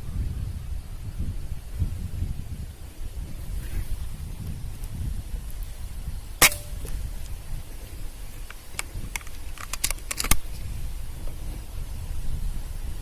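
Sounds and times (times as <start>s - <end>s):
sharp clicks and knocks: 8.8s - 10.4s.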